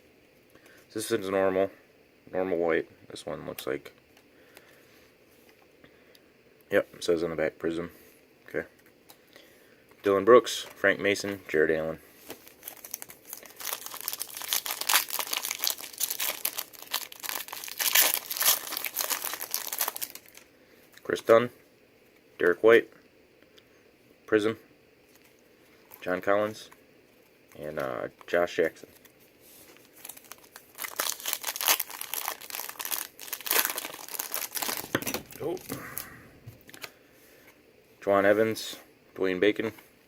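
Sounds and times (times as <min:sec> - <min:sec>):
foil wrapper crinkling: 0:12.3 - 0:20.5, 0:27.5 - 0:37.0.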